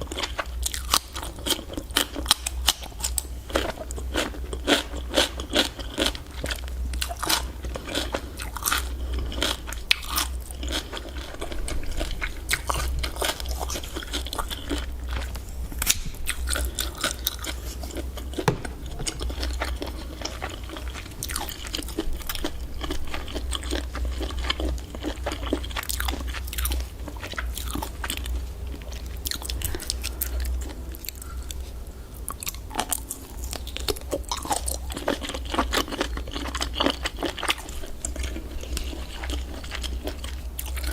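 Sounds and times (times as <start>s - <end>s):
person chewing food: 0.0s - 40.9s
low hum: 6.2s - 32.4s.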